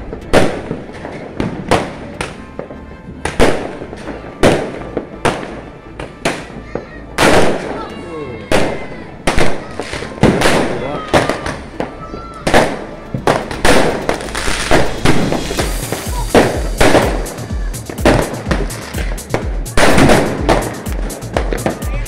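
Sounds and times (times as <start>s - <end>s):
fireworks bangs and crackles: 0.0s - 22.0s
music with thumping bass beat: 13.3s - 22.0s.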